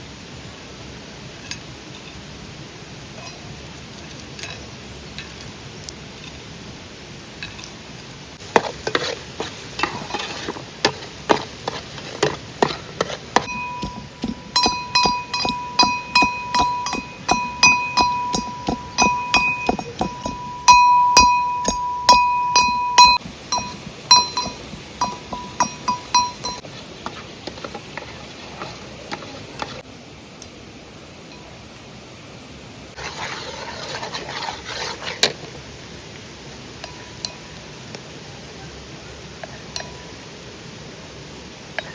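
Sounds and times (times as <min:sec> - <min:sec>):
metal utensil clinking against bowl: 0:09.8 - 0:26.7
bowl ringing: 0:13.4 - 0:26.6.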